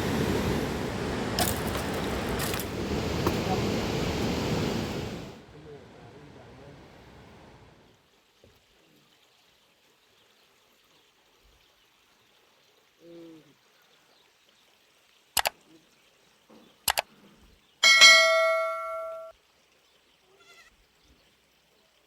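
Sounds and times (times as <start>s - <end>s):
struck metal ringing: 17.8s - 19.3s.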